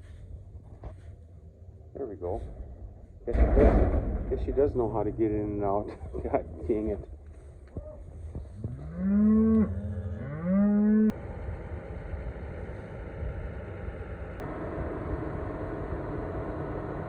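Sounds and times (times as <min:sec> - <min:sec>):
engine rumble: 0:00.0 - 0:17.0
cow mooing: 0:08.6 - 0:11.2.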